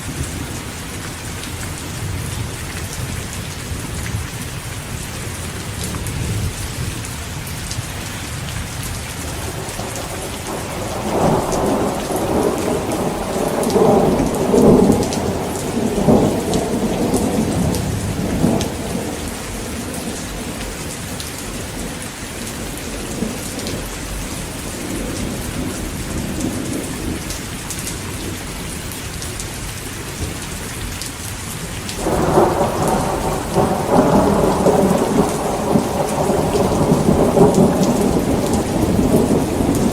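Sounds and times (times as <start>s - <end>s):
heavy rain falling: 0.0s - 39.9s
thunder rolling: 9.3s - 27.3s, 32.0s - 39.9s.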